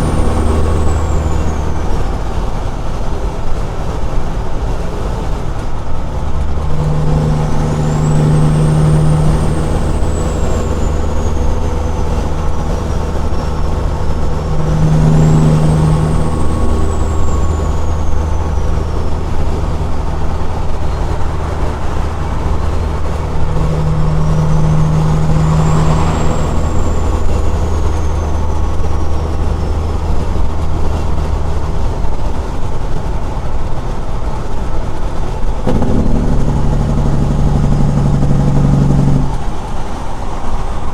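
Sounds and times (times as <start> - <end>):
diesel truck engine droning: 0.0 - 40.9
faint high whistle: 6.8 - 31.4.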